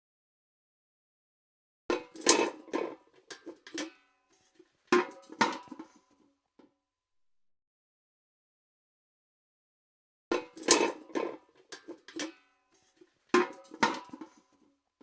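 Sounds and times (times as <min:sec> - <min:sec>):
metal bucket clanking: 0:01.9 - 0:06.0, 0:10.3 - 0:14.5.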